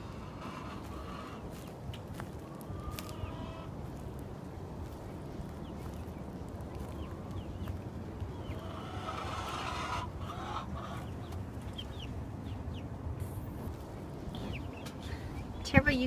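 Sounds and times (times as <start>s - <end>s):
hens clucking: 0.0s - 4.1s, 4.8s - 12.9s.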